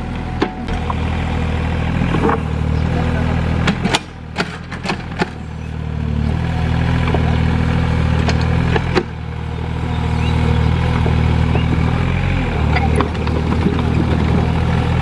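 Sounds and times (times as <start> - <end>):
excavator diesel engine: 0.0 - 15.0
sharp clanks and knocks: 3.6 - 5.6, 8.2 - 9.2, 12.6 - 14.5.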